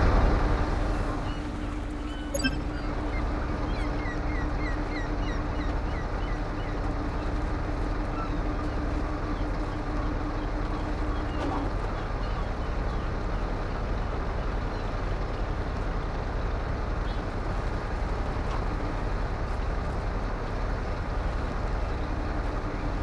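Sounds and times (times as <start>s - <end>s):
short high chirps: 2.2s - 3.2s.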